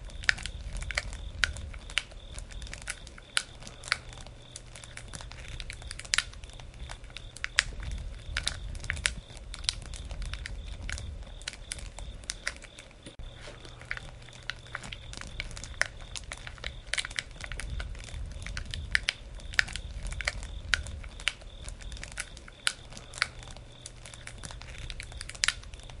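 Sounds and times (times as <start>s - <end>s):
campfire crackling and popping: 0.0s - 26.0s
low rumble of flames: 0.0s - 26.0s.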